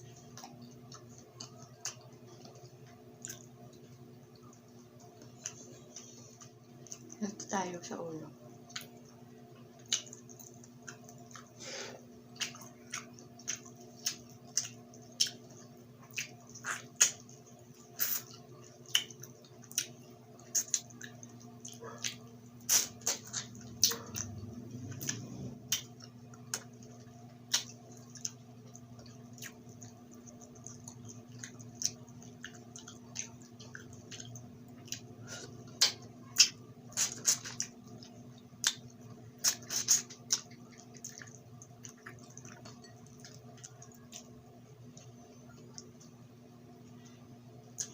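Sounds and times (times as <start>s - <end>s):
wet chewing and crunching: 0.0s - 7.4s, 8.4s - 46.2s, 46.9s - 47.9s
steady low hum: 0.0s - 47.9s
mouth smacks and clicks: 21.7s - 24.3s.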